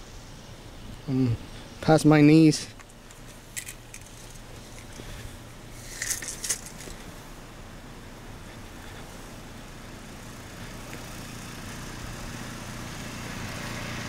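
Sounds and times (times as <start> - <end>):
crisp rustling clicks: 2.8 - 5.1, 5.8 - 7.1.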